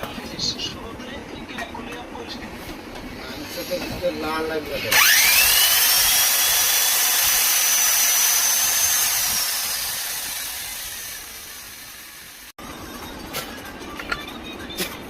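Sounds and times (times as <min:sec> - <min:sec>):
electric motor whining: 0:04.9 - 0:12.5.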